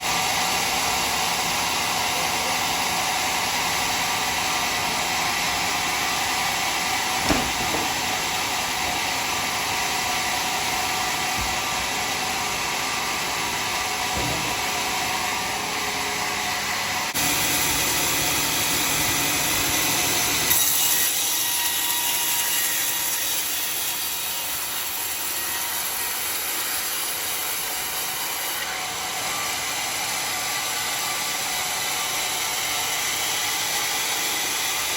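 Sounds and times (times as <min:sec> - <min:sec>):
sawmill saw cutting wood: 0:00.0 - 0:34.9
short knocks: 0:07.2 - 0:08.1.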